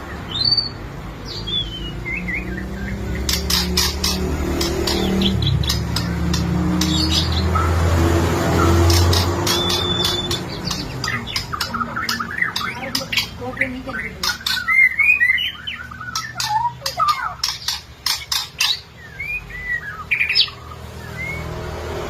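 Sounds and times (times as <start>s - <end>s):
bird singing whistles and clicks: 1.5s - 7.7s, 8.6s - 13.3s, 14.2s - 21.5s.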